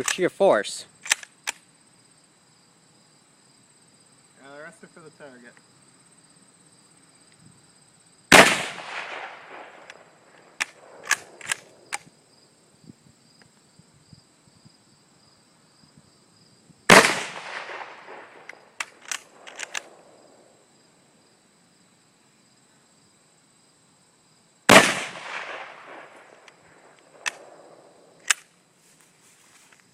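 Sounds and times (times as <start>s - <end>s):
rifle bolt metallic clicks: 0.0s - 0.2s, 1.0s - 1.6s, 10.6s - 12.1s, 18.4s - 20.0s, 26.4s - 27.5s, 28.2s - 28.5s
rifle shots with rolling echo: 8.3s - 12.1s, 16.9s - 20.5s, 24.7s - 28.4s.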